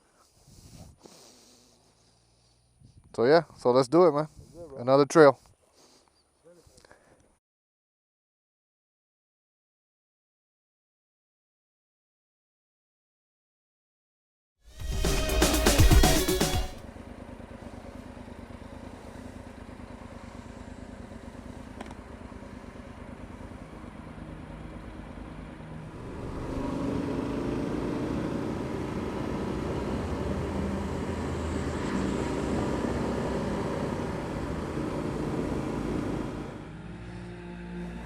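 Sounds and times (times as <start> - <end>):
motorcycle engine running: 15.4 - 36.8.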